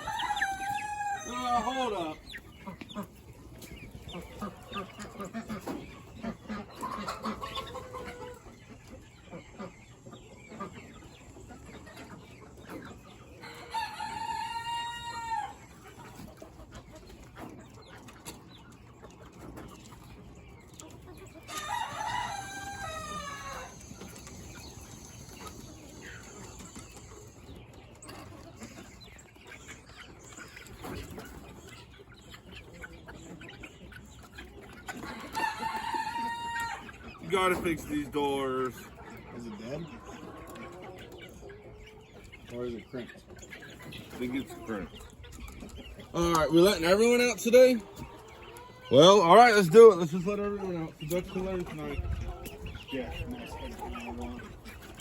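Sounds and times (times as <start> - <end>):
rooster crowing: 0.0 - 1.7, 21.6 - 23.8
chickens clucking: 0.0 - 55.0.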